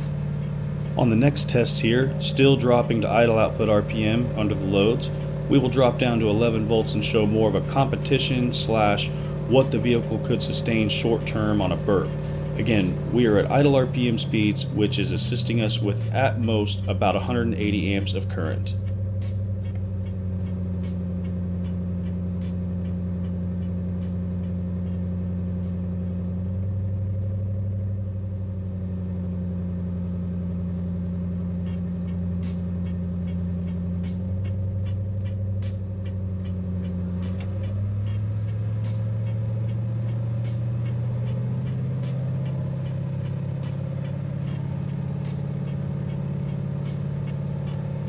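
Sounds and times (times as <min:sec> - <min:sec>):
car engine idling hum: 0:00.0 - 0:48.0
click: 0:31.6 - 0:43.0.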